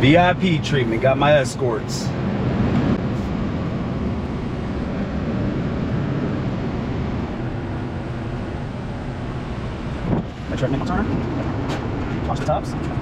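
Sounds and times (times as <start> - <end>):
road and wind noise: 0.0 - 13.0
truck engine running: 2.1 - 13.0.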